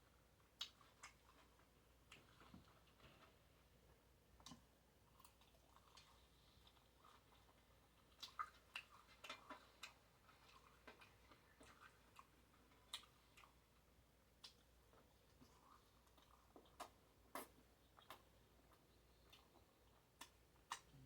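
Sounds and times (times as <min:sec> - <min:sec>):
wet mouth clicks chewing: 0:04.4 - 0:13.6, 0:14.4 - 0:21.0.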